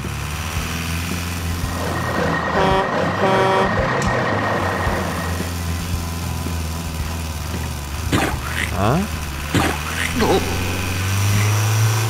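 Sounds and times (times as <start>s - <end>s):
truck engine running: 0.0s - 12.0s
truck horn toots: 2.5s - 3.9s.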